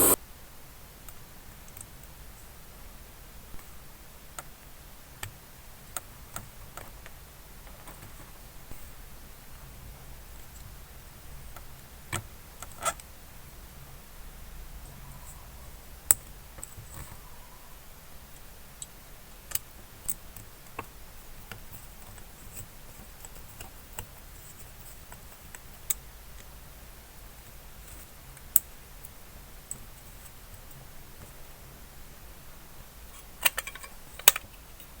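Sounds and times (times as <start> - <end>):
clicks and taps of small parts: 33.4 - 34.9.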